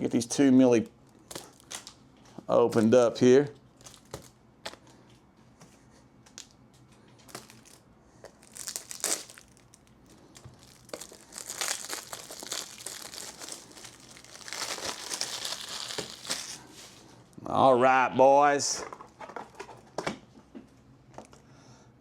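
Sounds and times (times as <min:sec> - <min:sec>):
plastic packaging crinkling: 0:01.0 - 0:02.0, 0:03.8 - 0:04.8, 0:07.2 - 0:17.1.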